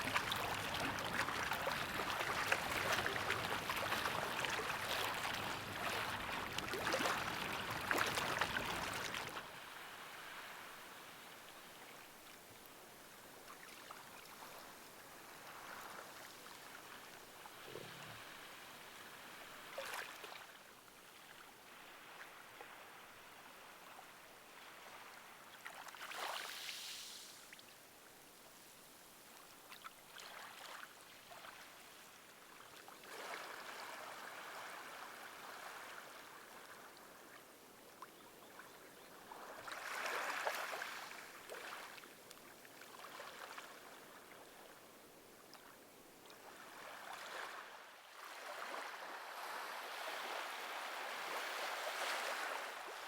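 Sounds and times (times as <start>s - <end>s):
water washing softly: 0.0s - 9.7s.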